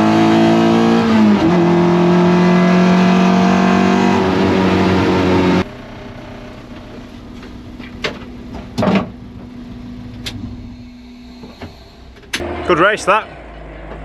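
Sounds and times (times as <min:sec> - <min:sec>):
car engine idling: 0:04.2 - 0:14.0.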